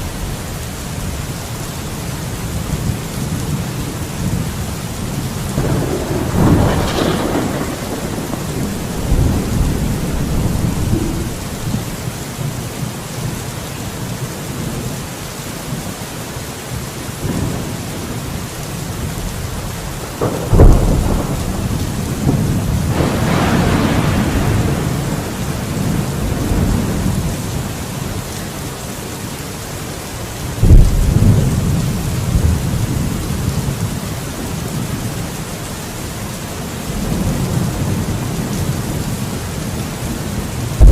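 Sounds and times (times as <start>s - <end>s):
heavy rain hiss: 0.0s - 40.9s
thunder cracks and rumbles: 5.4s - 12.1s, 20.2s - 27.7s, 30.6s - 33.9s, 36.9s - 40.9s.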